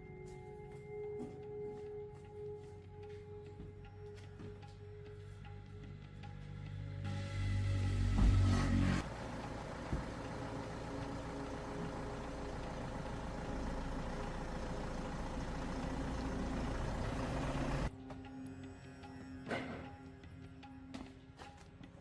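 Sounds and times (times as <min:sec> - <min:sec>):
truck engine idling: 0:01.4 - 0:17.9.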